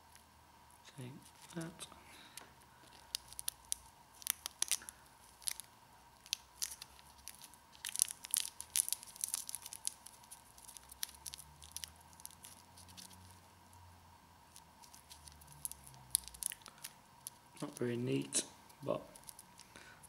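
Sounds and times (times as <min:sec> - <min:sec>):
parcel tape tearing and crackling: 0:02.8 - 0:13.4, 0:14.5 - 0:18.0, 0:18.7 - 0:19.7.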